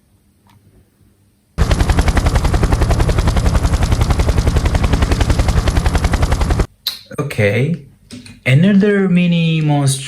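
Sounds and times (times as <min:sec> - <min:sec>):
helicopter rotor chop: 0:01.6 - 0:06.7.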